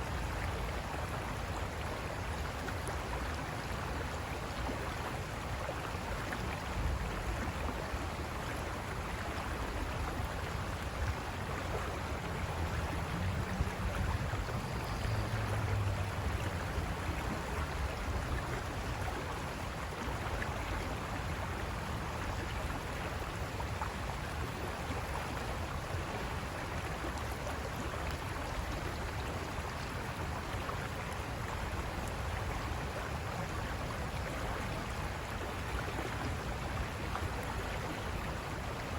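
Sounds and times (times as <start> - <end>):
river water rushing over rocks: 0.0 - 38.9.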